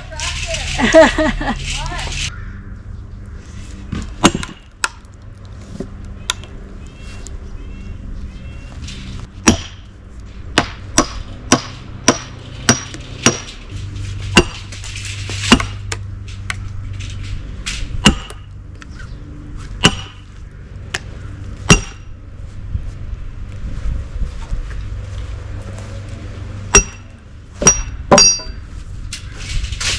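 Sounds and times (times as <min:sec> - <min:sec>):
sledgehammer striking steel wedge: 0:04.2 - 0:05.0, 0:09.4 - 0:09.9, 0:10.5 - 0:16.6, 0:18.0 - 0:18.5, 0:19.8 - 0:20.2, 0:21.7 - 0:22.1, 0:26.7 - 0:28.6.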